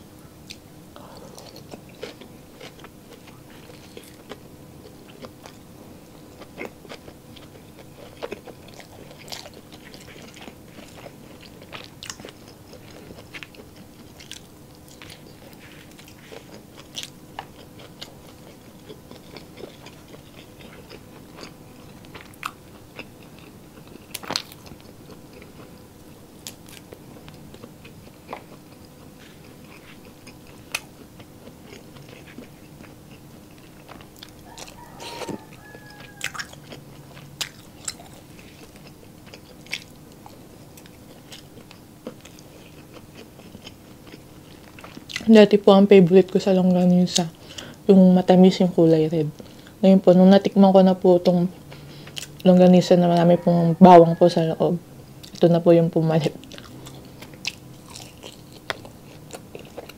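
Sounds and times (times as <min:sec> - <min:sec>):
faint steady hum: 0:00.0 - 0:59.9
wet chewing and mouth clicks: 0:06.3 - 0:45.3, 0:56.4 - 0:59.9.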